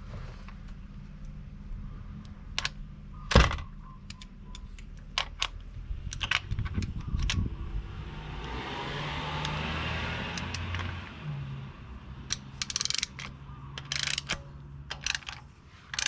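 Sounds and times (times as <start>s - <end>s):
ratchet clicks: 10.3s - 10.9s, 12.3s - 16.0s.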